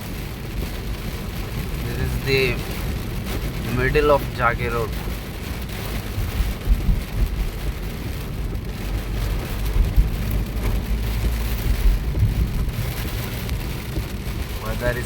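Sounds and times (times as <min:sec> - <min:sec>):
rain and wet road hiss: 0:00.0 - 0:15.0
vehicle low rumble: 0:00.0 - 0:15.0
low thumps: 0:06.0 - 0:14.3.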